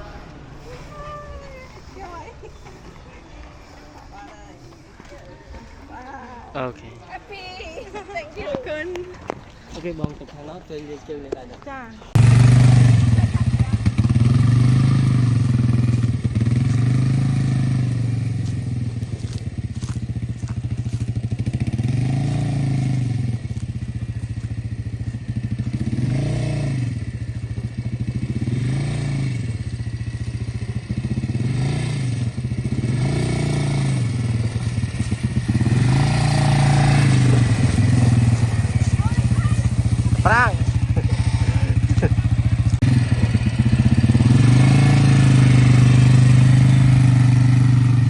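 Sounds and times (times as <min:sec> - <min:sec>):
quad bike engine revving: 0:12.1 - 0:48.0.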